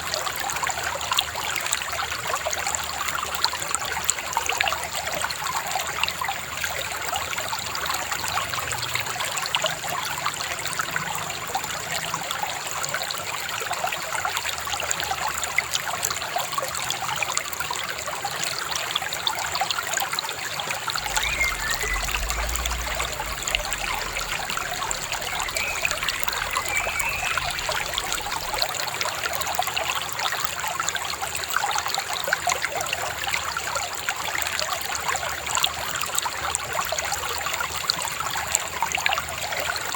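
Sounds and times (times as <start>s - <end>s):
shallow river babbling: 20.9s - 29.9s
faint bird chirps: 21.0s - 28.8s.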